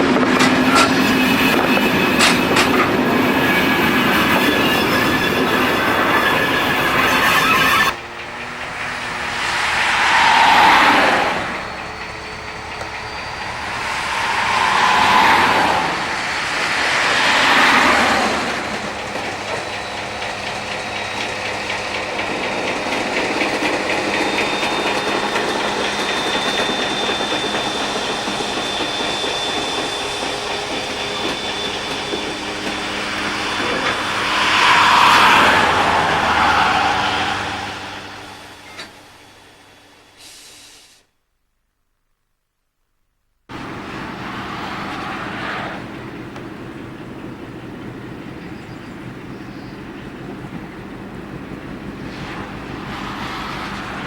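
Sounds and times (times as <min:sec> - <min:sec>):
wagon wheels clattering and squealing: 0:00.0 - 0:39.6
diesel locomotive running: 0:00.0 - 0:40.9, 0:43.5 - 0:54.0.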